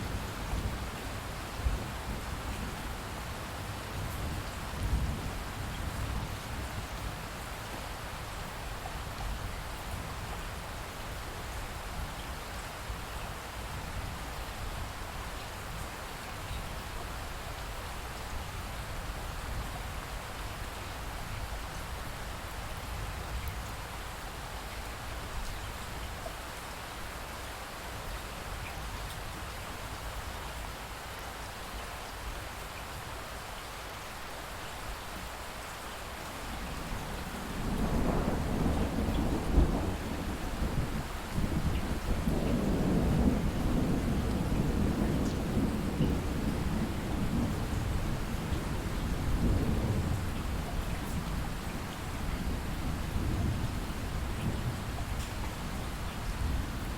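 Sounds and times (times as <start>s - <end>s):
low rumble of thunder: 0.0s - 7.6s, 36.2s - 56.9s
light steady rain: 0.0s - 56.9s
water drips on surfaces: 54.4s - 55.6s.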